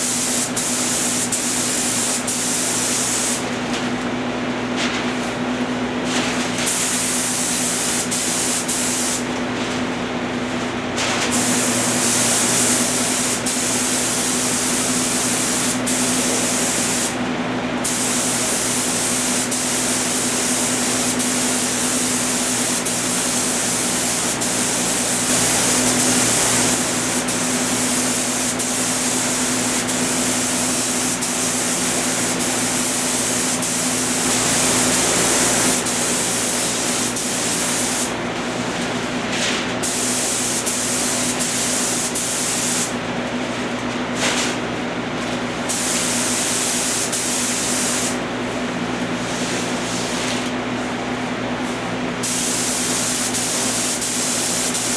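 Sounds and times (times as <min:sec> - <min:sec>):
paint spray gun hissing: 0:00.0 - 0:03.4, 0:06.7 - 0:09.3, 0:11.3 - 0:17.2, 0:17.8 - 0:38.2, 0:39.8 - 0:42.9, 0:45.7 - 0:48.2, 0:52.2 - 0:54.9.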